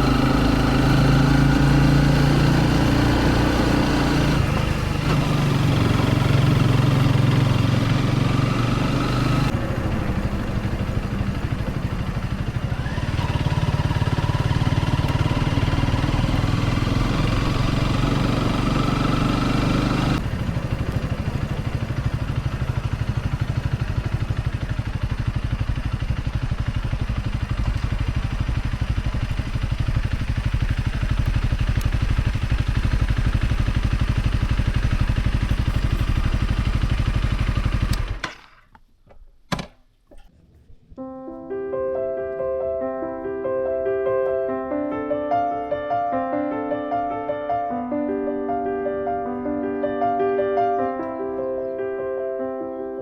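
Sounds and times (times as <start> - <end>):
motorcycle engine running: 0.0 - 38.6.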